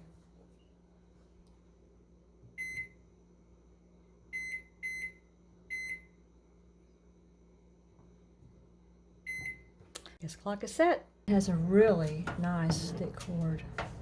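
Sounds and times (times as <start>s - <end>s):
microwave button beeps: 2.6s - 3.0s, 4.3s - 6.1s, 9.3s - 9.7s.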